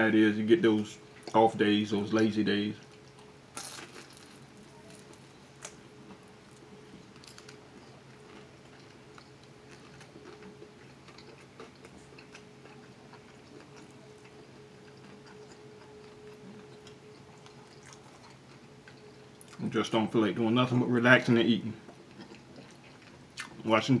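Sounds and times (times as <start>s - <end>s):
steady low hum: 0.0s - 24.0s
chewing food: 2.8s - 19.7s, 21.8s - 23.7s.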